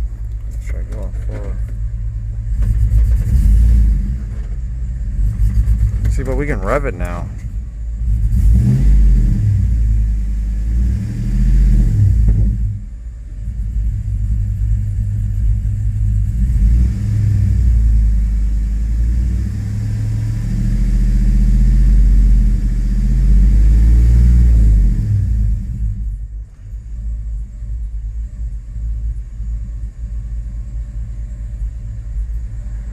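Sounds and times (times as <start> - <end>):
engine revving: 2.4 - 26.3.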